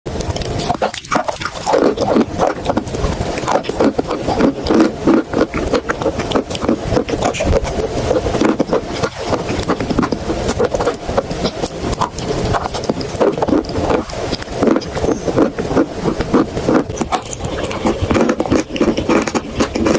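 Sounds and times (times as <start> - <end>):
chalk paste crunching and scraping: 0.3 - 19.9.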